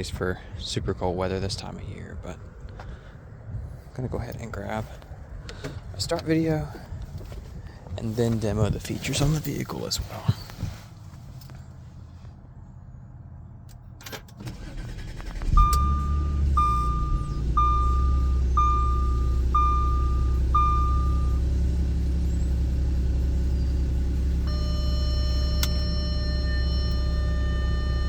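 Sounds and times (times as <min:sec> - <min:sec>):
car engine starting and idling: 0:03.7 - 0:28.0
car warning chime beeping: 0:14.6 - 0:21.9, 0:23.3 - 0:28.0.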